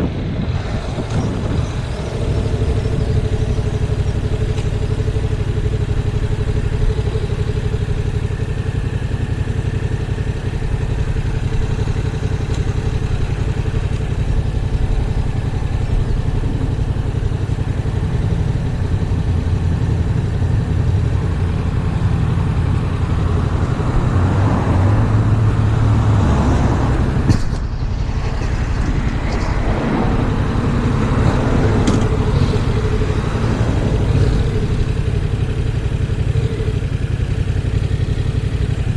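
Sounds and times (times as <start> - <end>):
wind buffeting microphone: 0.0 - 5.9, 12.8 - 20.1, 22.8 - 36.5
motorcycle engine running: 0.0 - 38.9.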